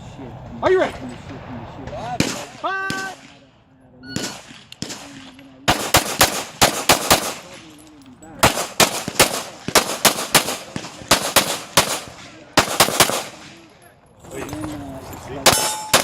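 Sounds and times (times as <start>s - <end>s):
pistol fired rapidly: 2.2s - 3.3s, 4.2s - 7.6s, 8.4s - 13.6s, 15.5s - 16.0s.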